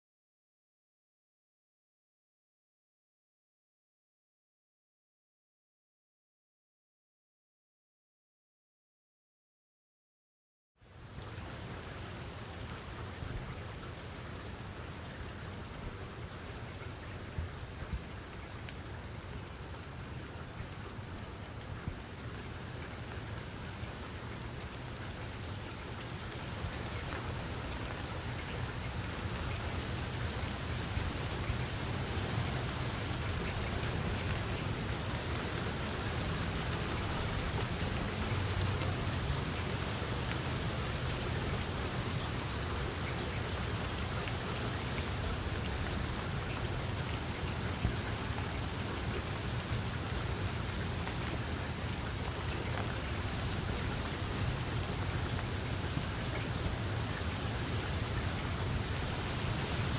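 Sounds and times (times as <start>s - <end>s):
rain falling: 10.9s - 59.9s.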